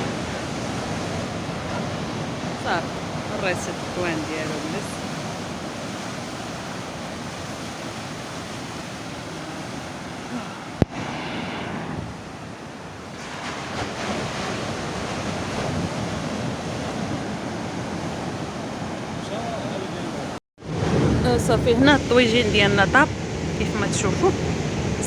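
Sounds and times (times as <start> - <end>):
wind on microphone: 0.0 - 19.2
sea surf washing ashore: 0.0 - 25.0.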